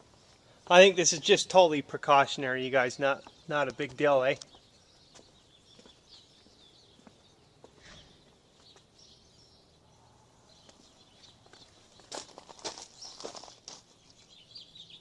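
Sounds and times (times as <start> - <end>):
faint bird chirps: 4.4 - 12.1.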